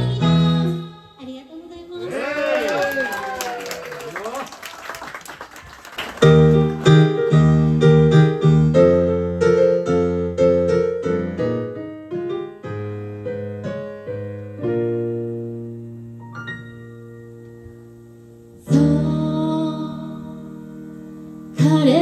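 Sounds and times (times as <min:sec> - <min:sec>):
piano-like keyboard chords: 0:00.0 - 0:01.2, 0:06.2 - 0:22.0.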